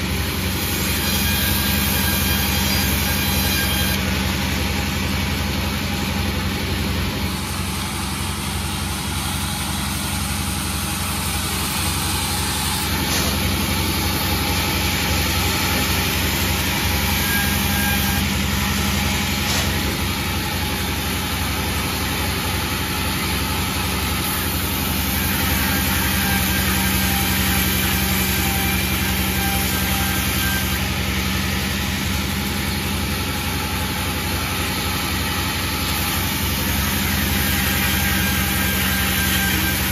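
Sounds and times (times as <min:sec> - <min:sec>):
sawmill engine droning: 0:00.0 - 0:39.9.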